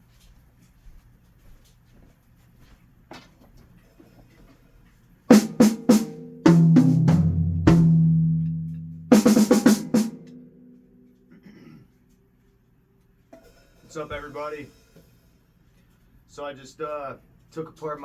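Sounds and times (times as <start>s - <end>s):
low ringing tom strokes: 5.3s - 10.5s
drum fills: 5.3s - 10.6s.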